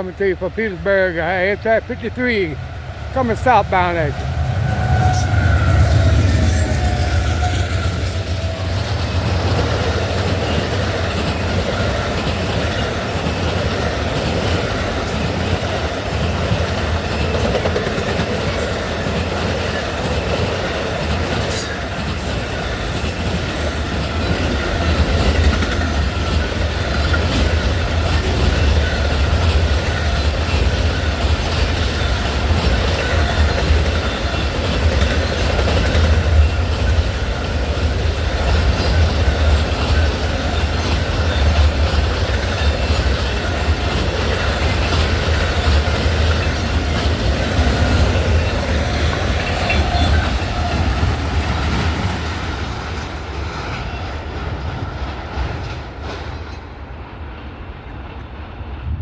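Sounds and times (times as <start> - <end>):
wheels clacking over rail joints: 0.0 - 58.5
train wheels rumbling on rail: 0.0 - 59.0.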